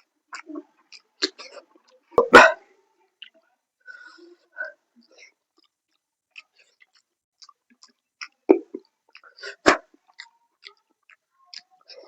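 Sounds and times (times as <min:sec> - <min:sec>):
chewing and wet mouth smacks: 0:00.0 - 0:02.0, 0:05.0 - 0:12.0.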